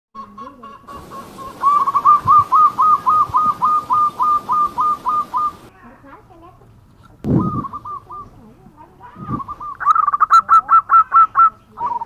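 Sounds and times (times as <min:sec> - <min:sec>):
dove cooing: 0:00.9 - 0:05.7, 0:07.3 - 0:08.5, 0:09.1 - 0:12.0.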